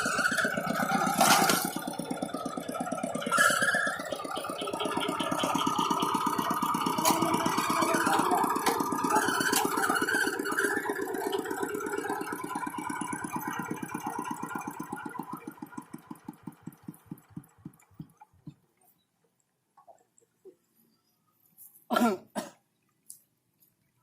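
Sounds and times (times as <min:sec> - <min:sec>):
tractor engine shutting down: 0:00.0 - 0:18.5.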